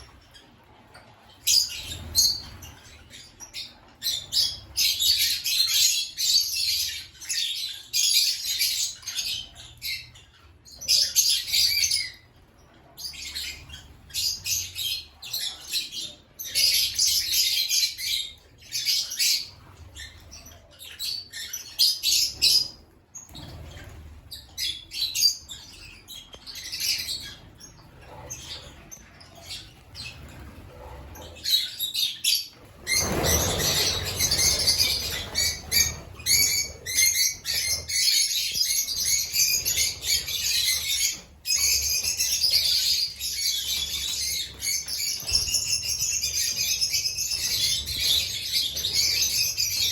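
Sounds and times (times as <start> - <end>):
lovebirds chirping and squawking: 0.0 - 49.9.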